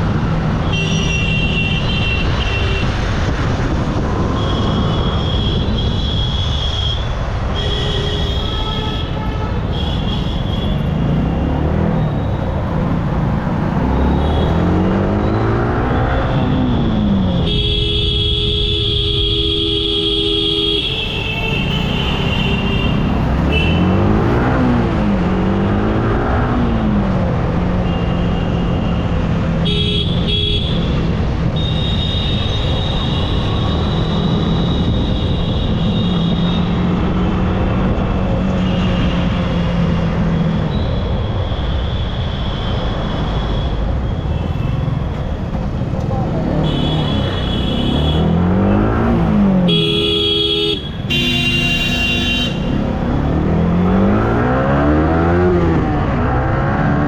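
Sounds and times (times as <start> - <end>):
wind noise on microphone: 0.0 - 6.8
vehicle horn: 7.6 - 11.0, 17.4 - 24.1, 46.6 - 48.3, 49.6 - 52.9.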